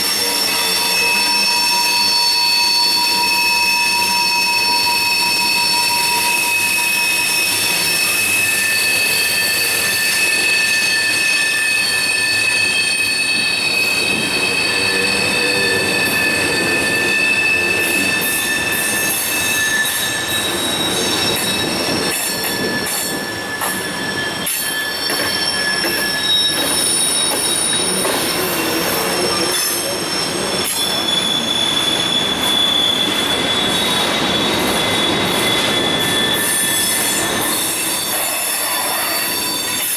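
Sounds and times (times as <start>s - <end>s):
train wheels squealing: 0.0s - 39.9s
freight cars rolling: 13.5s - 39.5s.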